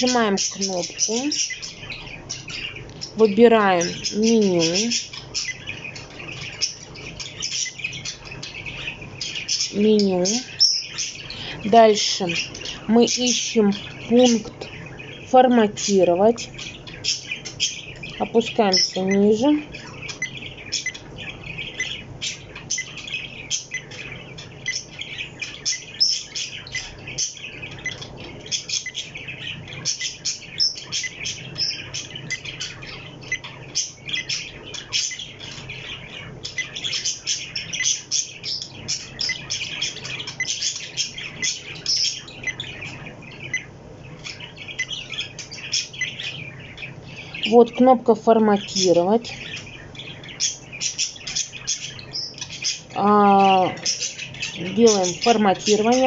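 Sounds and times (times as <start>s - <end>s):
faint low hum: 0.0s - 56.0s
small bird chirping: 0.0s - 56.0s.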